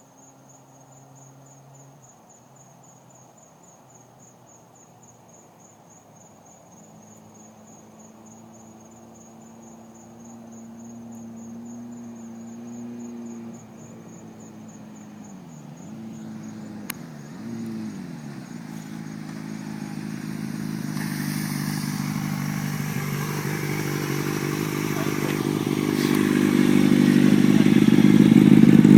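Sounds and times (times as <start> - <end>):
crickets chirping: 0.0 - 28.9
distant motorcycle engine revving: 9.7 - 28.9.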